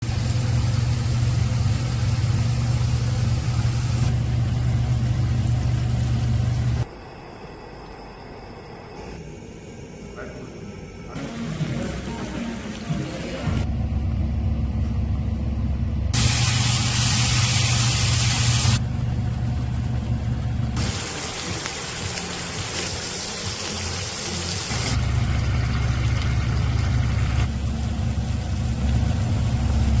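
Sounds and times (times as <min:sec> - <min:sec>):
low stove hum: 0:00.0 - 0:30.0
loud hissing of frying: 0:16.2 - 0:18.8, 0:20.8 - 0:30.0.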